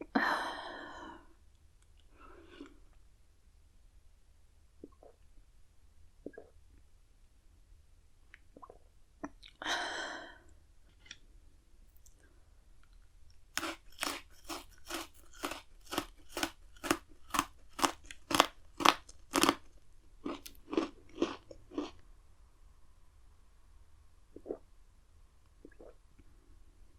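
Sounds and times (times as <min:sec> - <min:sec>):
loud biscuit crack: 0:13.6 - 0:19.6
biscuit stick crunching: 0:13.6 - 0:21.9.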